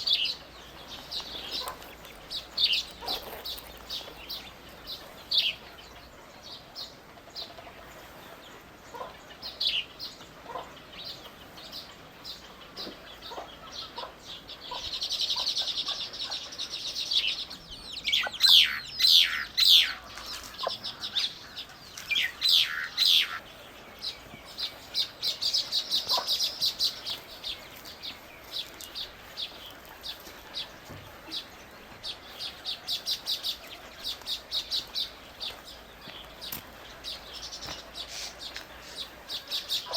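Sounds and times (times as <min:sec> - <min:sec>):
birds chirping: 0:00.0 - 0:39.9
bird trill: 0:09.0 - 0:39.9
sharp downward bird calls: 0:18.0 - 0:23.6.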